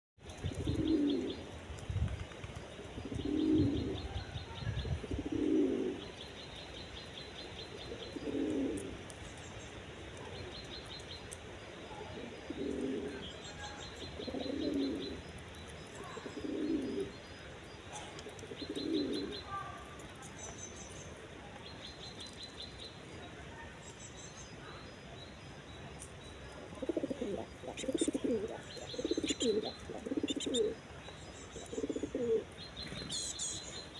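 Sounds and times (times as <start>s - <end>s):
pigeon cooing: 0.5s - 1.4s, 3.1s - 6.1s, 7.9s - 9.0s, 12.0s - 13.2s, 14.2s - 15.2s, 16.0s - 17.1s, 17.9s - 19.4s, 26.8s - 30.8s, 31.6s - 33.4s
small bird chirping: 12.4s - 33.9s.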